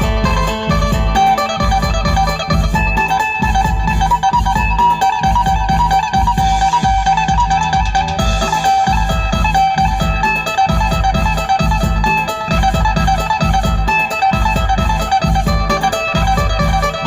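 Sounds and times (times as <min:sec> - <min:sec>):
bass beat: 0:00.0 - 0:17.0
plucked lute melody: 0:00.0 - 0:17.0.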